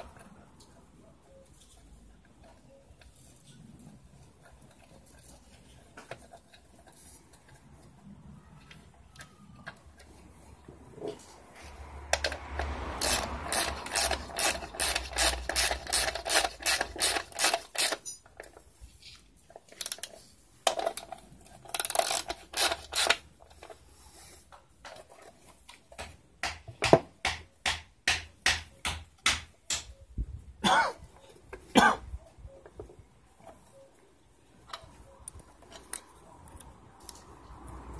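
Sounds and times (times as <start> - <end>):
ratchet clicking: 12.2 - 18.1, 21.7 - 23.2.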